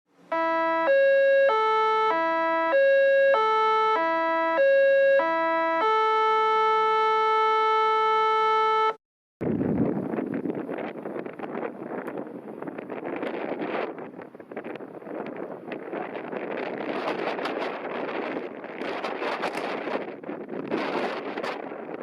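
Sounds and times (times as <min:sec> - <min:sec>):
electronic beeping jingle: 0:00.3 - 0:09.0
wind on microphone: 0:09.4 - 0:22.0.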